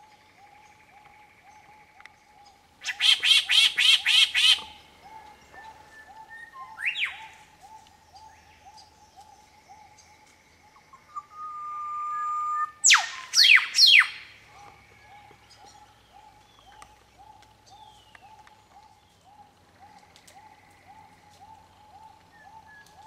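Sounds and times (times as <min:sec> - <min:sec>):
bird long steady whistle: 0:02.8 - 0:07.4, 0:11.0 - 0:14.3.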